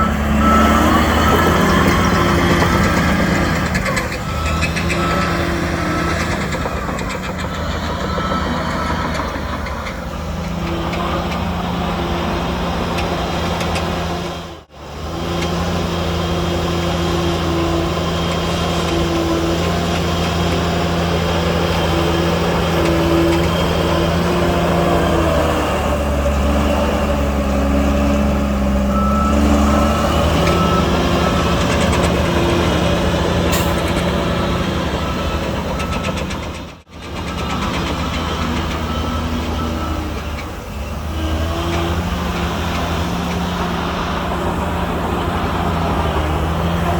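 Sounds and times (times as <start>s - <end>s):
reversing alarm beeps: 0.0s - 7.0s, 28.8s - 33.0s
heavy diesel engines under load: 0.0s - 46.9s.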